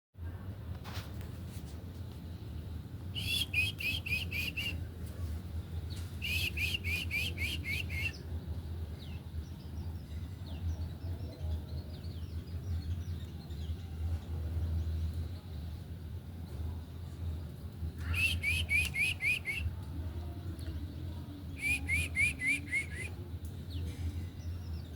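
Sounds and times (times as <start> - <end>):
birds calling sharp notes: 3.2 - 4.8, 5.9 - 8.3, 18.0 - 19.7, 21.5 - 23.2.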